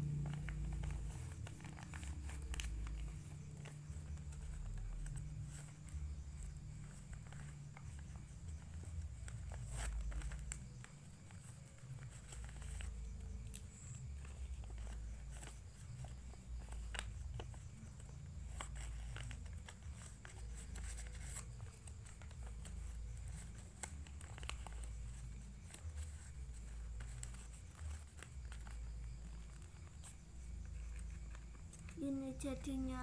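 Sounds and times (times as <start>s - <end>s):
steady low rumble: 0.0s - 10.9s
paper crinkling: 0.0s - 33.0s.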